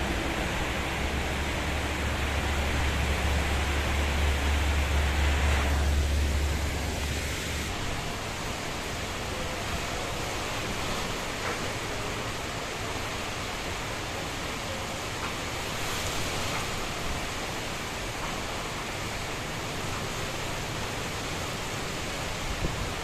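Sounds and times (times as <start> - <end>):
heavy rain and wind: 0.0 - 23.0.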